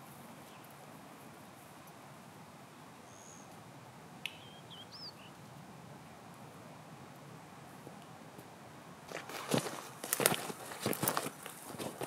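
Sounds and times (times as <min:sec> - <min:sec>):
faint outdoor background: 0:00.0 - 0:12.0
small bird high calls: 0:03.0 - 0:03.6, 0:04.2 - 0:05.4
thin whistle: 0:04.3 - 0:05.1.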